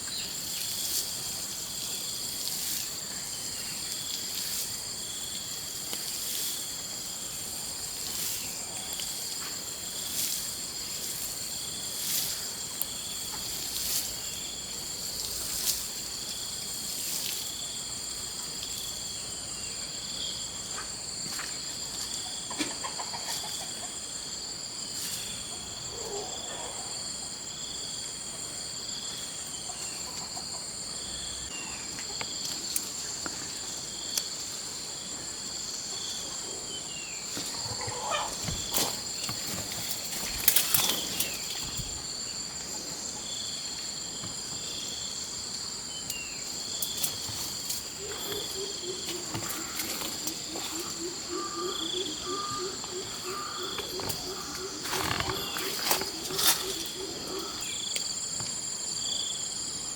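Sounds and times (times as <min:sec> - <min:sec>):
shrill insect chorus: 0:00.0 - 0:59.9.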